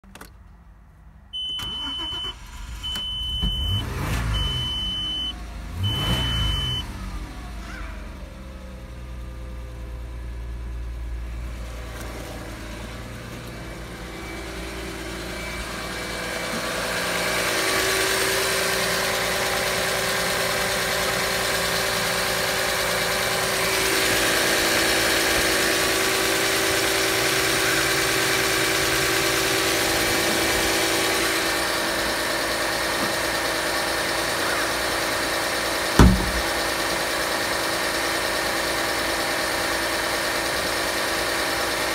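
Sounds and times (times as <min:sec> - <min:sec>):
car engine starting and idling: 0:00.0 - 0:41.9
dashboard warning beep: 0:01.4 - 0:07.0.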